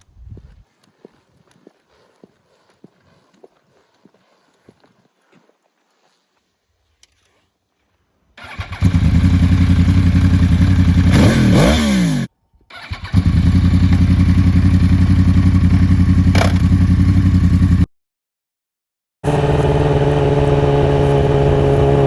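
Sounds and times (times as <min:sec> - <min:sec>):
motorcycle engine idling: 0:08.4 - 0:11.2, 0:13.1 - 0:17.9
motorcycle engine starting: 0:08.4 - 0:17.9, 0:19.2 - 0:22.0.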